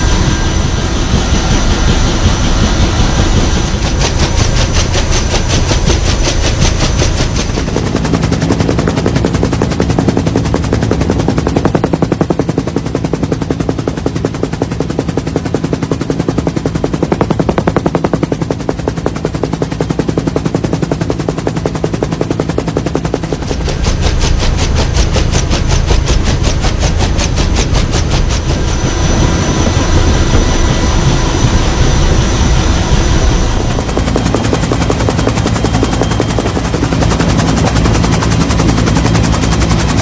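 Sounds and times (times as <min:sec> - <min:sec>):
motor hum: 0:00.0 - 0:40.0
rotor blades chopping: 0:03.3 - 0:28.6, 0:33.3 - 0:40.0.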